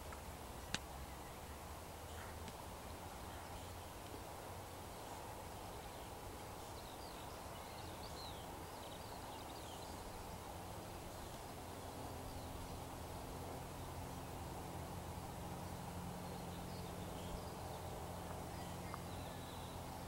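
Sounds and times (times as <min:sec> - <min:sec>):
rural background hiss: 0:00.0 - 0:20.0
faint bird chirps: 0:15.7 - 0:20.0.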